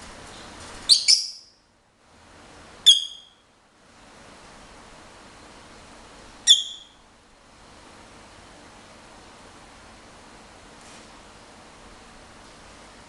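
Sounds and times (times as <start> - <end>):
lovebird shrill chirps: 0.9 - 1.6, 2.8 - 3.4, 6.4 - 7.0.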